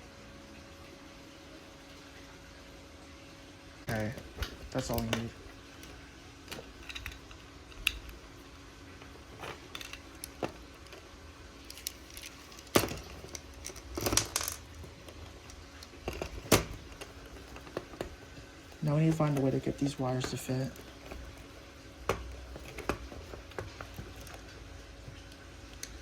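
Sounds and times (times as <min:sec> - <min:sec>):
toy train parts clicking and rattling: 0:05.8 - 0:08.2, 0:09.4 - 0:11.0, 0:11.6 - 0:21.4.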